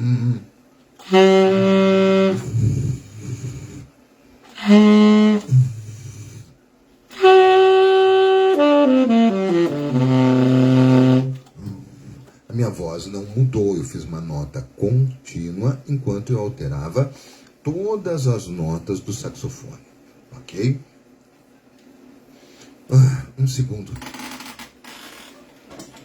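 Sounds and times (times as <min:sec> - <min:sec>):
voice humming into saxophone: 0:00.0 - 0:03.9, 0:04.5 - 0:06.5, 0:07.2 - 0:12.2
saxophone playing: 0:01.0 - 0:03.8, 0:04.5 - 0:06.4, 0:07.1 - 0:11.5.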